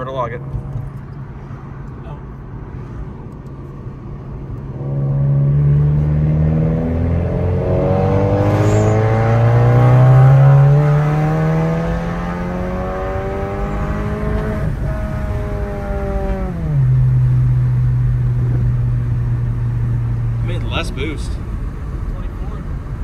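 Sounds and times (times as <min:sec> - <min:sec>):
car engine revving under full throttle: 0:04.6 - 0:23.0.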